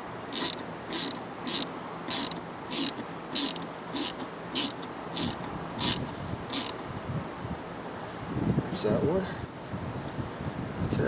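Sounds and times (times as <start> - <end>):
ratchet pawl clicks: 0.3 - 6.8.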